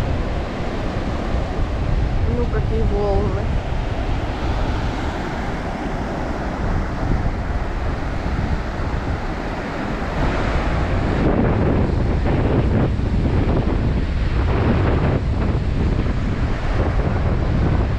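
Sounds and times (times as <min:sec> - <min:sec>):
surf washing onto shore: 0:00.0 - 0:17.9
wind buffeting microphone: 0:00.0 - 0:17.9.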